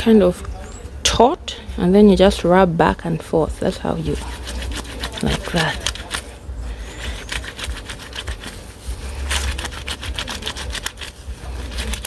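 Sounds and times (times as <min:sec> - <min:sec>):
fabric scrubbed by hand: 0:03.5 - 0:06.4, 0:07.0 - 0:12.0.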